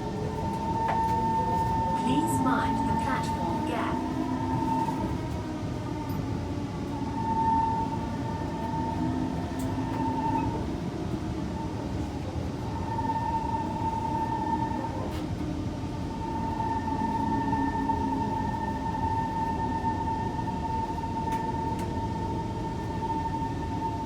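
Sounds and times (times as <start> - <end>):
mid-pitched whine: 0.0 - 24.0.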